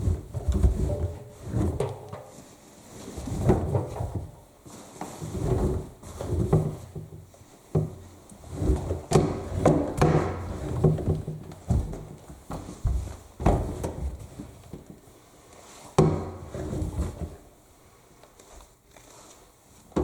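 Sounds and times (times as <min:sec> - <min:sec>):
fabric rustling and thudding: 0:00.0 - 0:15.0.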